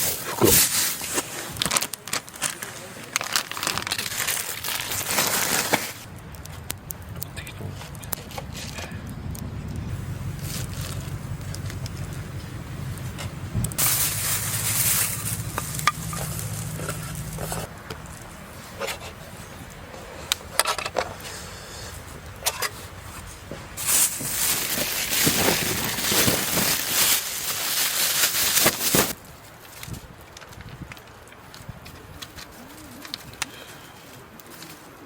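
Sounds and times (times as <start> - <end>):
rustling noise: 0.0 - 6.7, 7.4 - 35.0
low hum: 6.1 - 18.6.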